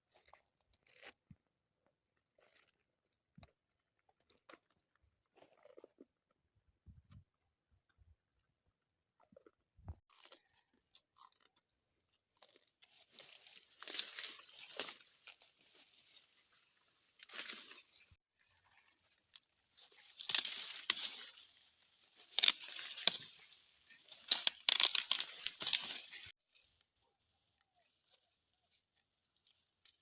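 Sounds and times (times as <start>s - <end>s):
fruit tearing and crunching: 0.0s - 6.2s, 10.1s - 26.4s.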